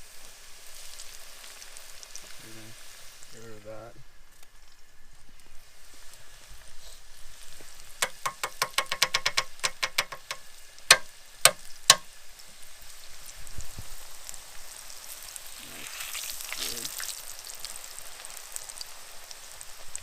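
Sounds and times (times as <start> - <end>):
fish frying in hot oil: 0.0 - 20.0
oil popping loudly: 8.0 - 12.1.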